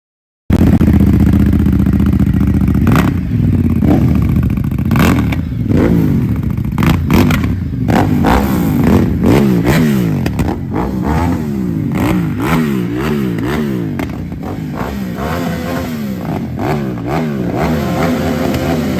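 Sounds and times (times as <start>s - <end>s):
motorcycle engine revving: 0.5s - 18.9s
exhaust pops: 6.4s - 10.8s, 13.3s - 14.4s.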